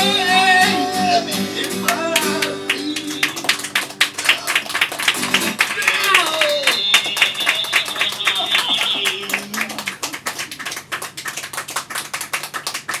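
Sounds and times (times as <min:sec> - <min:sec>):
small audience clapping: 0:01.6 - 0:13.0.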